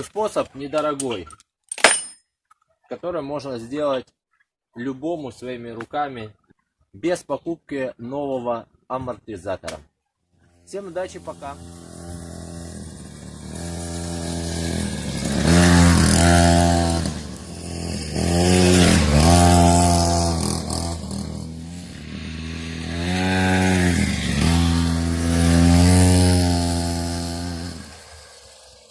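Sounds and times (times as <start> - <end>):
small petrol engine revving: 10.5 - 28.9.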